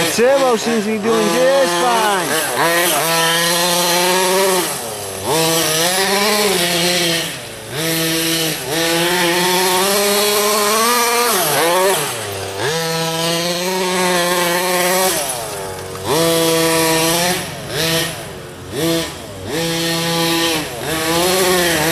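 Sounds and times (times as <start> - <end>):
radio-controlled car engine: 0.0 - 21.9.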